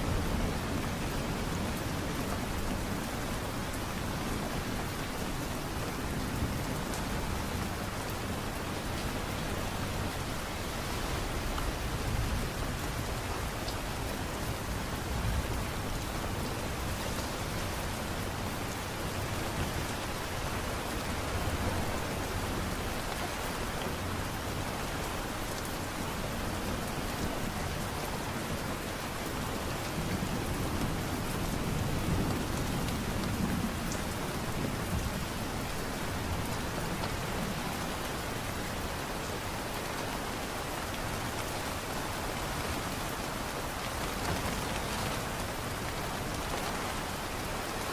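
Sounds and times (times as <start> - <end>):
light rain falling: 0.0 - 47.9.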